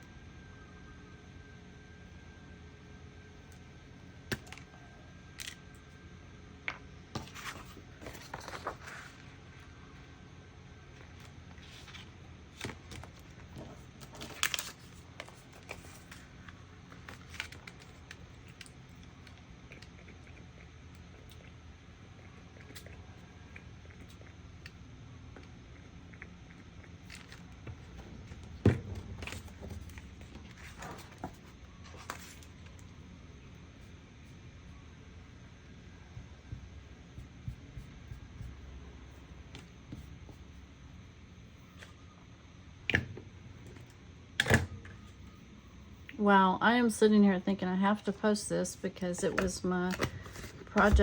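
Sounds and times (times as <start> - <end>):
art supplies clicking and tapping: 49.2 - 51.0.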